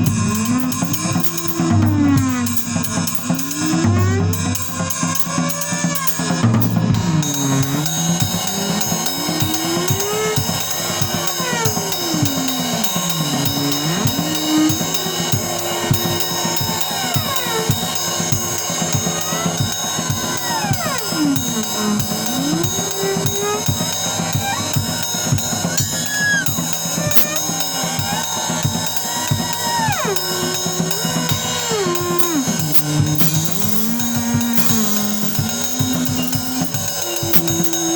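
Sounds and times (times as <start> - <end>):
sliding bass notes: 0.0 - 25.6, 26.9 - 37.9
drum kit with ringing cymbals: 0.0 - 37.9.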